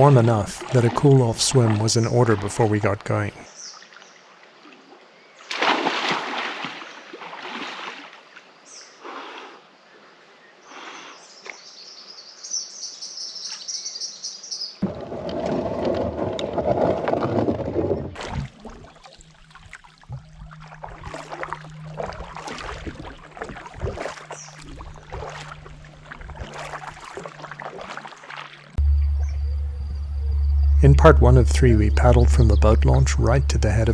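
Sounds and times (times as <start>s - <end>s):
water splashing: 0.0s - 3.4s, 5.5s - 8.2s, 18.2s - 33.9s
water dripping: 28.8s - 33.9s.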